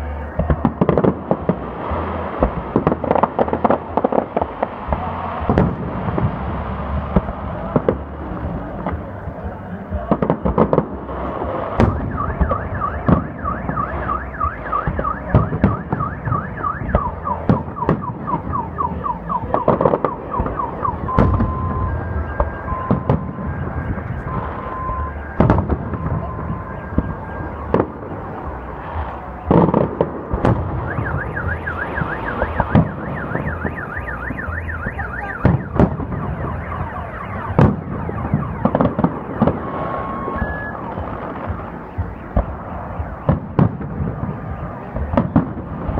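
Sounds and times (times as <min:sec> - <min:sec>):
fireworks bangs: 0:00.0 - 0:45.9
car alarm warbling and beeping: 0:11.7 - 0:45.4.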